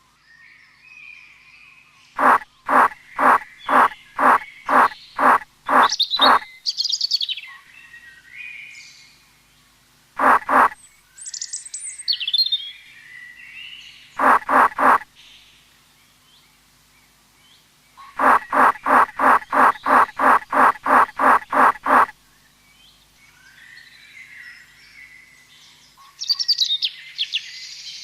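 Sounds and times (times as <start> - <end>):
harsh bird calls: 2.2 - 6.5, 10.2 - 10.8, 14.2 - 15.0, 18.1 - 22.1
rapid bird trilling: 2.2 - 6.5, 10.2 - 10.8, 14.2 - 15.0, 18.2 - 22.1.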